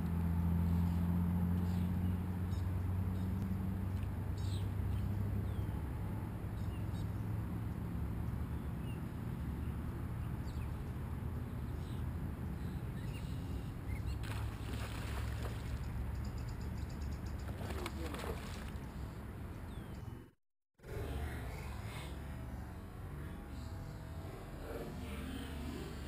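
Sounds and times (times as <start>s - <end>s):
small birds chirping: 0.8s - 5.8s, 15.6s - 20.3s.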